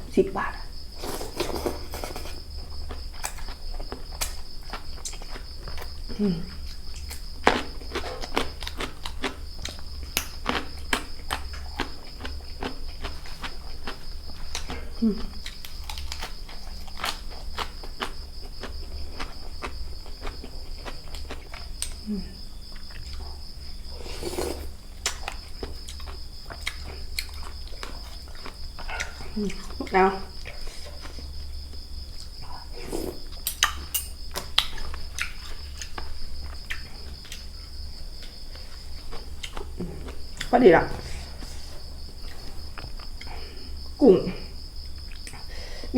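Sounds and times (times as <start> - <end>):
crickets trilling: 0.0 - 45.9
crunchy chewing of raw vegetables: 0.8 - 45.8
utensils and dishes clinking: 1.0 - 2.4, 33.9 - 34.2.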